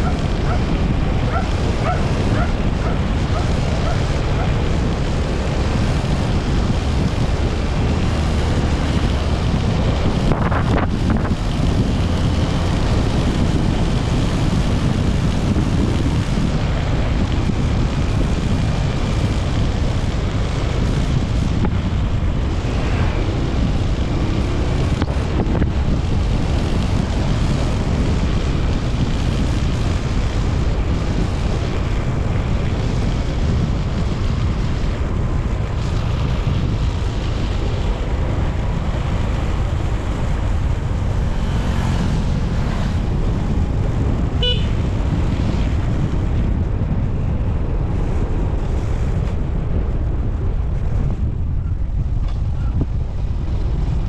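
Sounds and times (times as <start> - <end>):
motorcycle engine: 0.0 - 54.0
road noise: 0.0 - 54.0
wind on microphone: 0.0 - 54.0.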